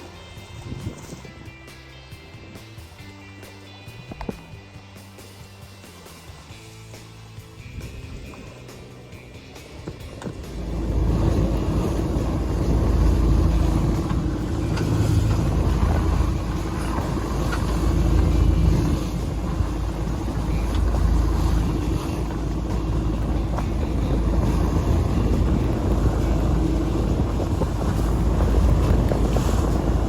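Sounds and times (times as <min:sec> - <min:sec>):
steady low boat hum: 0:00.0 - 0:30.0
wind buffeting microphone: 0:00.4 - 0:01.3, 0:07.6 - 0:30.0.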